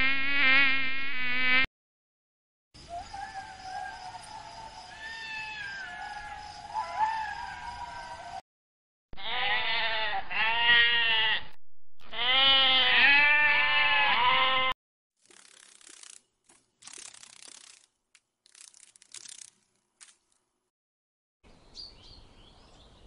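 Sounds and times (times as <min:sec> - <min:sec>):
goat bleating: 0:09.2 - 0:14.8.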